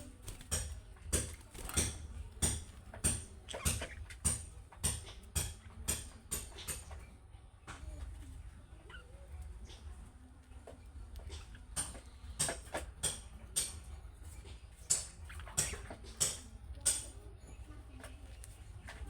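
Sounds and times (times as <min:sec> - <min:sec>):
budgerigars chirping: 0:02.4 - 0:04.5.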